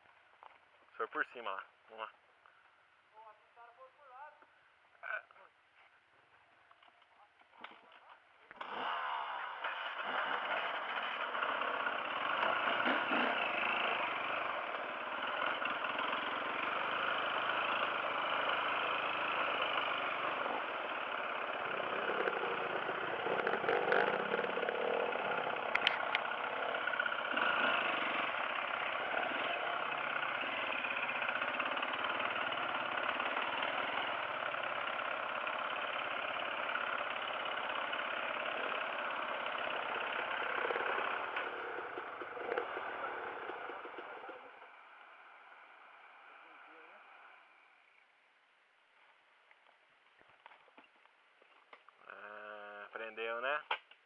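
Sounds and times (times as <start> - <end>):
dirt bike engine running: 8.6 - 47.0.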